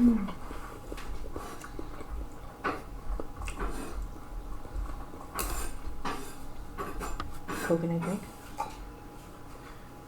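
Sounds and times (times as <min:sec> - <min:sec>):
wet chewing sounds: 0:00.2 - 0:06.7
utensils clinking against bowl: 0:05.3 - 0:08.8.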